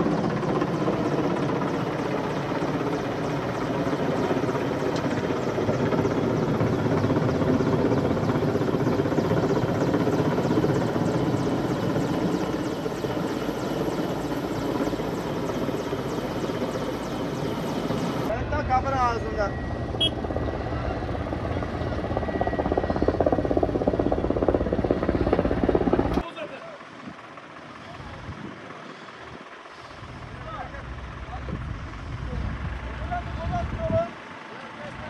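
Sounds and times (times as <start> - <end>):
helicopter rotor beating: 0.0 - 35.0
helicopter turbine running: 0.0 - 35.0.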